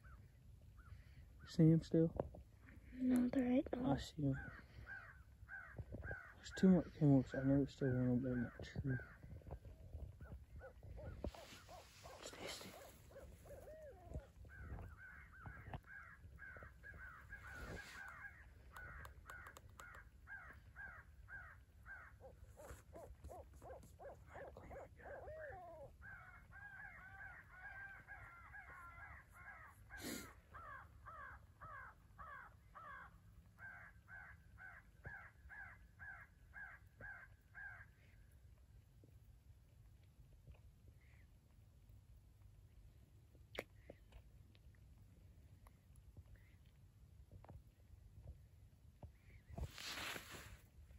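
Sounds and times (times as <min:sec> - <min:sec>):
crows cawing: 0:04.2 - 0:10.0, 0:12.8 - 0:24.1, 0:25.0 - 0:38.2.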